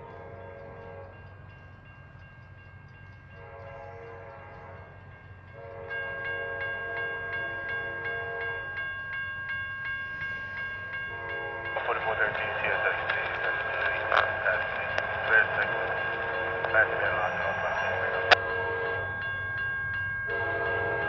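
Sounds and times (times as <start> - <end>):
locomotive air horn blasts: 0.0 - 1.1, 3.4 - 4.9, 5.6 - 8.6, 11.1 - 12.2, 17.5 - 19.2, 20.3 - 21.0
bell ringing rapidly: 6.0 - 21.0.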